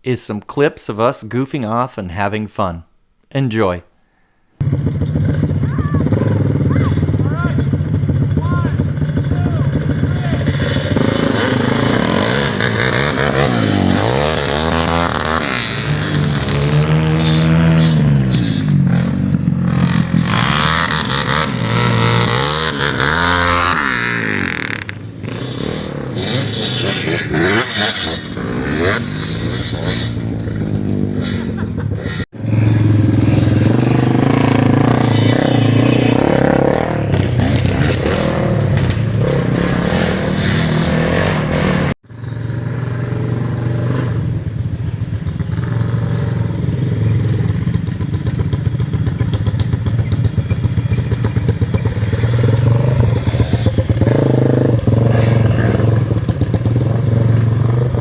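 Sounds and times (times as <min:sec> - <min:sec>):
small engine revving: 0:04.6 - 0:44.2.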